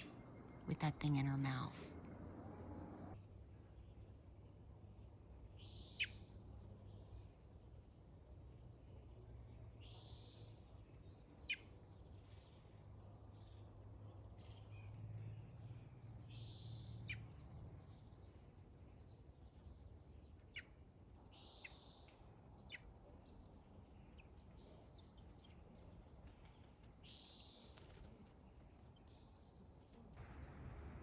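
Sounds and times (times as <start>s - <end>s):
small bird chirps: 5.0s - 7.2s, 9.8s - 13.7s, 14.4s - 29.6s.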